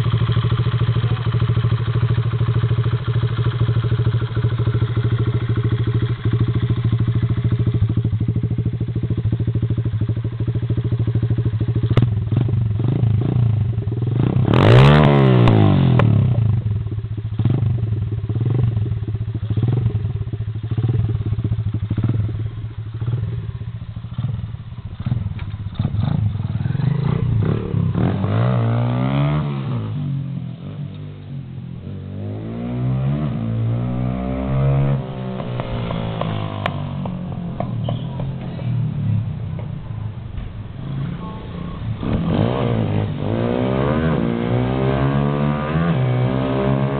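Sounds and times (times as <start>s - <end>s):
motorcycle engine idling and revving: 0.0s - 46.9s.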